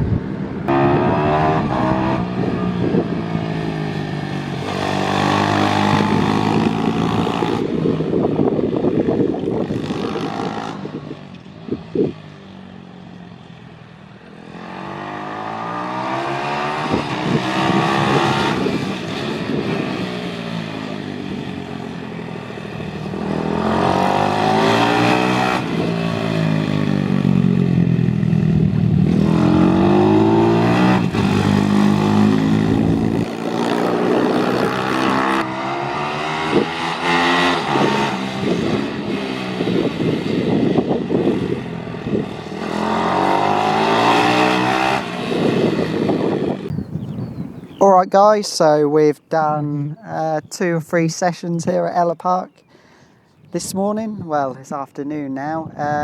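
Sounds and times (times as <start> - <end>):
motorbike engine revving: 0.7 - 7.9, 14.3 - 47.0.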